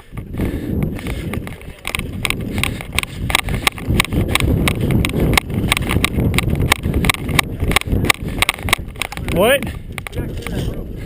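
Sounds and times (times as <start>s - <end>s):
low rumble of movement: 0.0s - 11.0s.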